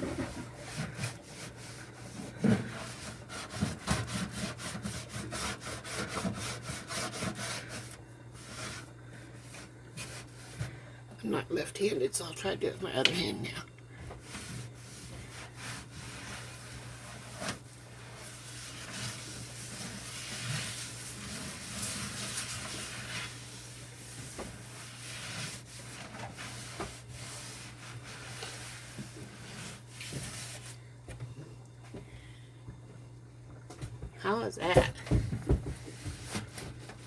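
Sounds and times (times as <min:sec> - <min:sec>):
cloth rag scrubbing: 0:00.0 - 0:10.7, 0:14.2 - 0:30.8.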